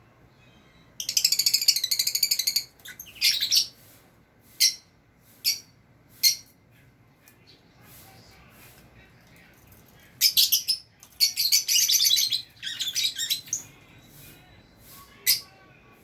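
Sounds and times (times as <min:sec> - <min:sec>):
lovebirds chirping: 0:00.0 - 0:03.9, 0:04.5 - 0:06.6, 0:10.0 - 0:15.6.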